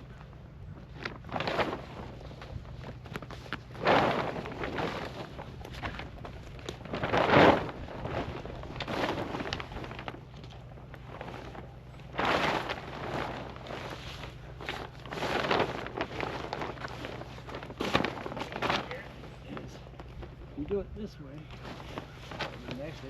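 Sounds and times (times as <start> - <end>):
plastic tarp rustling and crackling: 0.0 - 20.8, 21.5 - 23.0.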